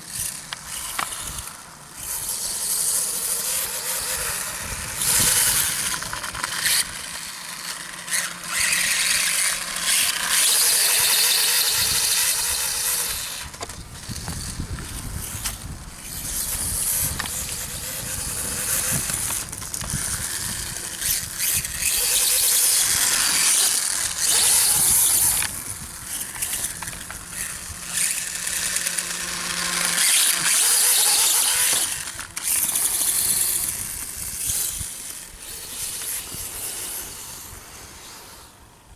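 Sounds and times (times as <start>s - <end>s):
electric motor whine: 0.0s - 38.9s.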